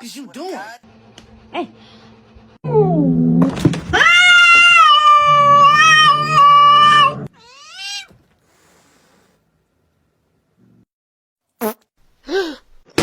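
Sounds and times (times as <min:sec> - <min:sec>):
cat yowling: 0:03.9 - 0:08.1.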